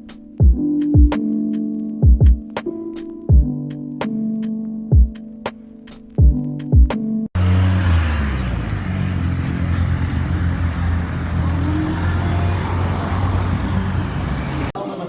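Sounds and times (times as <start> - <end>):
electronic music with kick drum: 0.0 - 7.2
street traffic: 7.3 - 14.8
vehicle engine running: 7.4 - 14.8.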